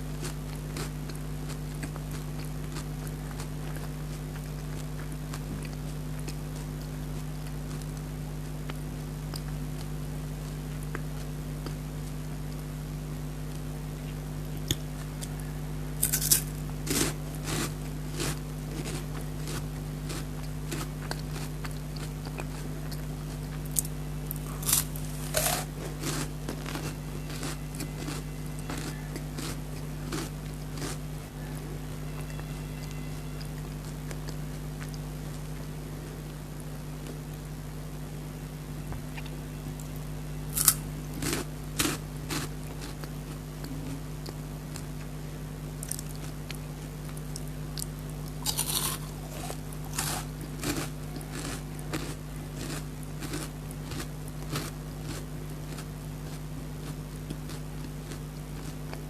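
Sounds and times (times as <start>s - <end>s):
steady low hum: 0.0s - 59.0s
crunchy bites and chewing: 0.1s - 11.9s, 14.5s - 31.2s, 40.5s - 45.1s, 45.8s - 59.0s.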